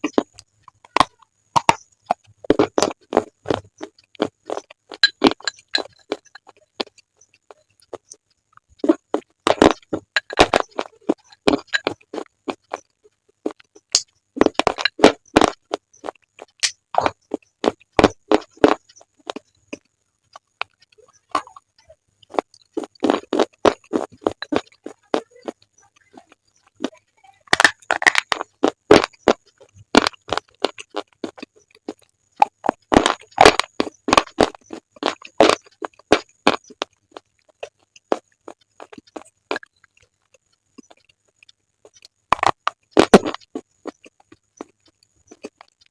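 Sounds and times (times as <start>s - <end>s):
slate pencils crunching in teeth: 0.0s - 7.1s, 7.8s - 19.6s, 22.2s - 26.9s, 27.5s - 45.9s.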